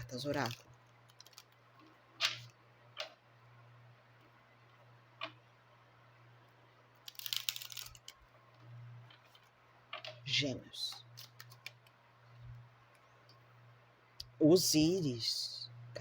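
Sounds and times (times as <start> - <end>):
steady low hum: 0.0 - 16.0
papery rustle of cards: 0.2 - 2.5, 7.0 - 8.2, 11.1 - 11.9.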